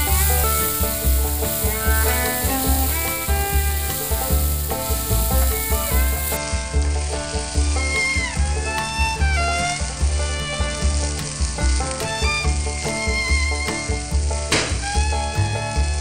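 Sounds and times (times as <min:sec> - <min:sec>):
vegetables sizzling in oil: 0:00.0 - 0:08.2, 0:09.6 - 0:13.0
music with bass beat: 0:00.0 - 0:16.0.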